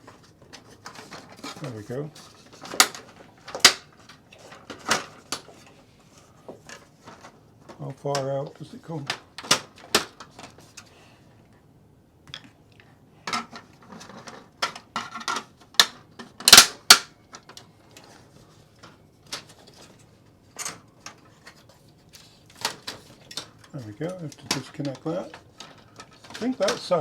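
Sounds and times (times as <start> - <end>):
plastic parts clicking and rattling: 0.1 - 5.7, 9.0 - 10.9, 13.3 - 18.2, 18.8 - 27.0
sharp plastic snaps: 2.7 - 3.8, 15.8 - 17.6.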